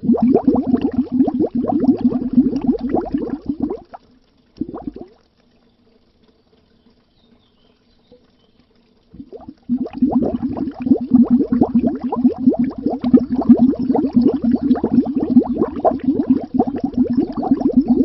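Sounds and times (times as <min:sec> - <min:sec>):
water bubbling underwater: 0:00.0 - 0:05.2, 0:09.1 - 0:18.0
faint low hum: 0:00.0 - 0:18.0.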